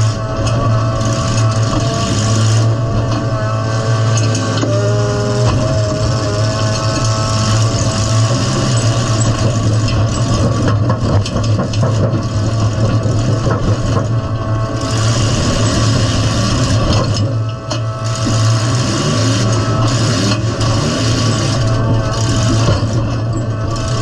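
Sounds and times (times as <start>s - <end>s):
loud car engine running: 0.0s - 24.0s
car body clanking and rattling: 5.4s - 24.0s.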